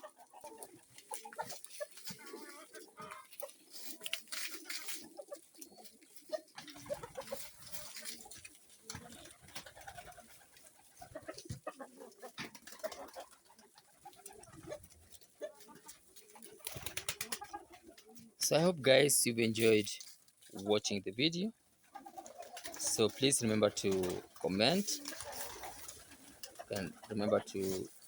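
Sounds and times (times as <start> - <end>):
low cooing bird calls: 0.0 - 18.4.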